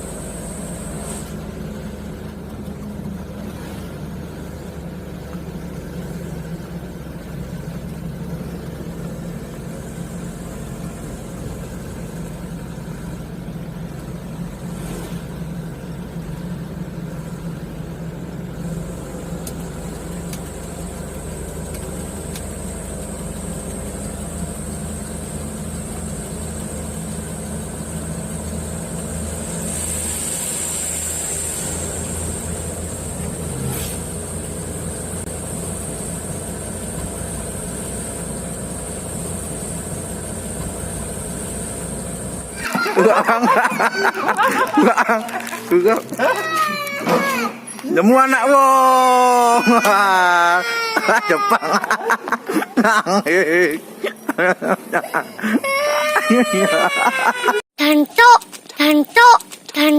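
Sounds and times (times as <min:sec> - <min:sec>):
thin high whine: 0:00.0 - 0:01.7, 0:28.8 - 0:35.7
diesel truck engine running: 0:00.0 - 0:55.6.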